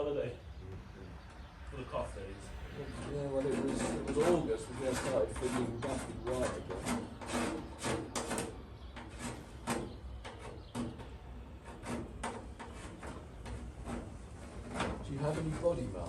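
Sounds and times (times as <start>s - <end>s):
hand tool scraping and clicking: 5.0s - 11.0s.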